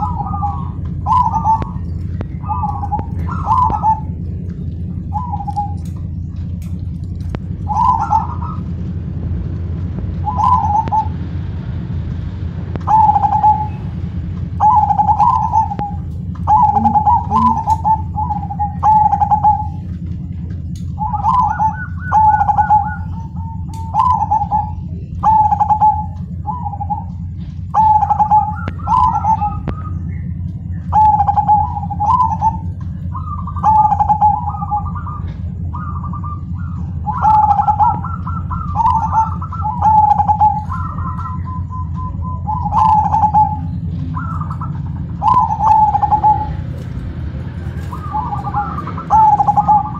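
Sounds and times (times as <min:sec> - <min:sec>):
dove cooing: 0:00.0 - 0:09.1, 0:10.0 - 0:11.6, 0:12.8 - 0:49.9
low hum: 0:00.0 - 0:49.9.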